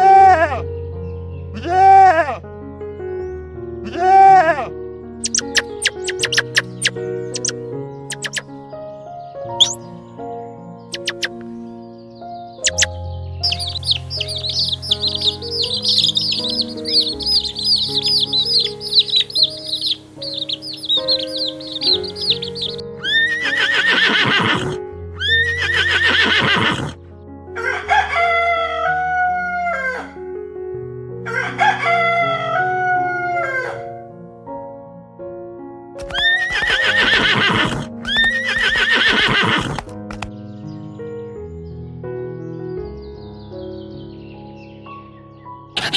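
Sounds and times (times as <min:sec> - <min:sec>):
background music: 0:00.0 - 0:45.9
chicks peeping: 0:05.2 - 0:08.5, 0:09.6 - 0:09.9, 0:10.9 - 0:11.5, 0:12.6 - 0:23.8, 0:27.6 - 0:30.2, 0:36.0 - 0:37.0, 0:37.6 - 0:38.8, 0:39.6 - 0:40.4
harsh falling chicken calls: 0:05.2 - 0:08.5, 0:09.6 - 0:09.8, 0:10.9 - 0:11.4, 0:12.6 - 0:27.0, 0:27.6 - 0:30.2, 0:31.3 - 0:33.9, 0:36.0 - 0:40.3
rooster crowing: 0:13.5 - 0:24.8, 0:27.6 - 0:30.2, 0:31.3 - 0:34.0.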